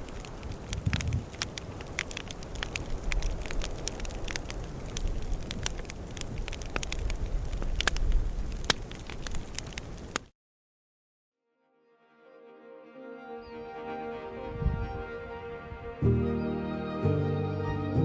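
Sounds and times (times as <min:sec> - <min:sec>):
campfire crackling and popping: 0:00.0 - 0:10.3.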